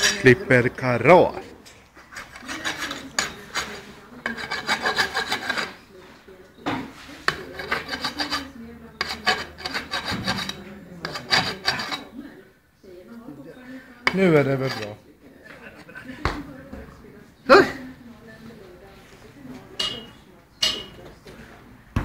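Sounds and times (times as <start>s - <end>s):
rasp filing hoof: 2.0s - 5.8s, 7.2s - 12.1s, 14.1s - 15.0s.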